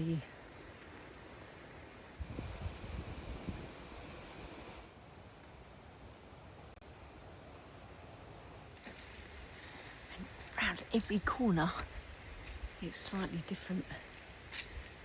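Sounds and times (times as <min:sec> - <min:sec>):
insects droning: 0:00.0 - 0:09.2.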